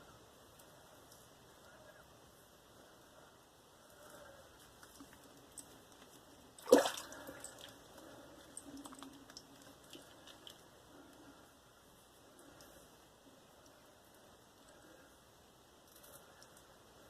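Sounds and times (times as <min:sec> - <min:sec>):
water splash: 0:06.6 - 0:07.5.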